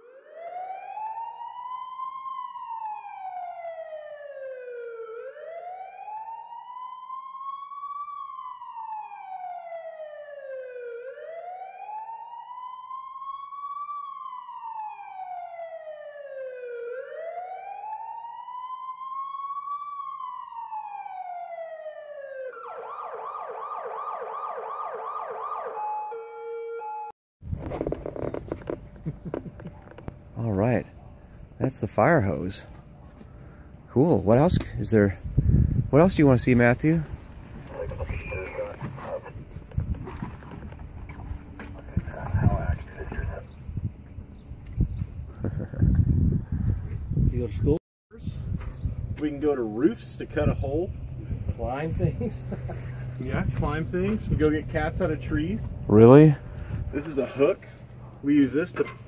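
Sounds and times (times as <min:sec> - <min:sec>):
emergency siren wailing and yelping: 0:00.0 - 0:27.1, 0:37.6 - 0:39.8, 0:41.2 - 0:43.5.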